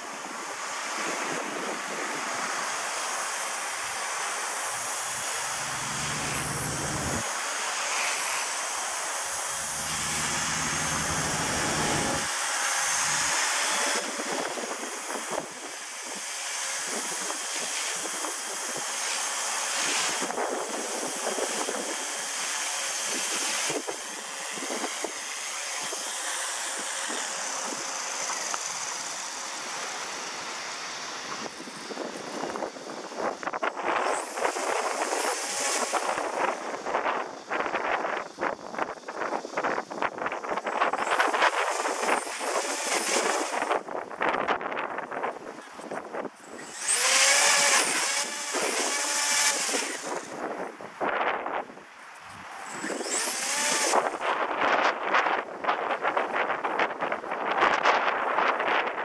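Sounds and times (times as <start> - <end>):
rc helicopter whine: 0.0 - 50.8, 52.6 - 59.0
wind buffeting microphone: 4.6 - 7.3, 9.4 - 15.8.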